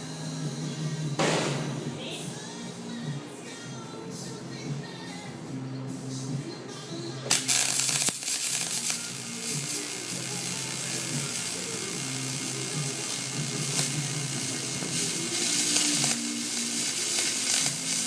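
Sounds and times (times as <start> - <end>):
welding arc crackling hiss: 7.3 - 18.0.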